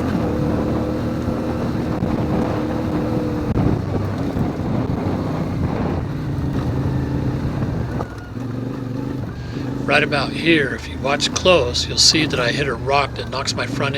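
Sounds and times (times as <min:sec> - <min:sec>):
wind noise on microphone: 0:00.0 - 0:08.4
motorcycle engine under load: 0:00.0 - 0:13.9.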